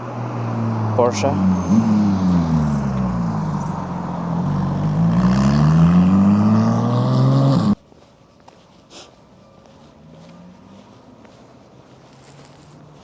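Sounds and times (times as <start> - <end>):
car engine passing by: 0.0 - 7.8
faint background noise: 0.0 - 13.0.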